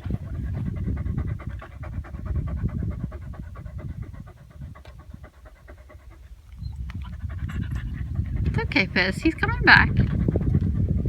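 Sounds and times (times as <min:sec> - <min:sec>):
dog panting rapidly: 0:00.0 - 0:11.0
steady low rumble: 0:00.0 - 0:11.0.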